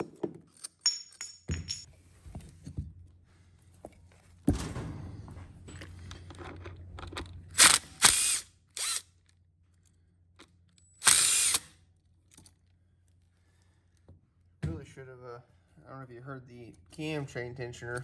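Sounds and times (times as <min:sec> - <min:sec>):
cordless power tool bursts: 0:07.6 - 0:09.0, 0:11.0 - 0:11.7.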